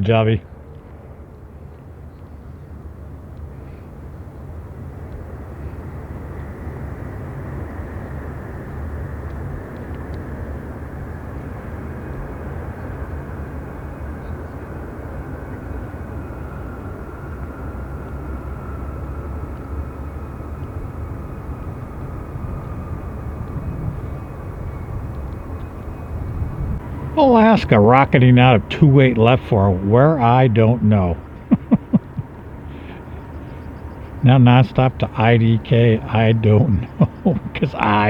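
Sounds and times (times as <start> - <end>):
jet airliner engine roar: 0.0 - 38.0
jet engine whine: 0.5 - 38.0.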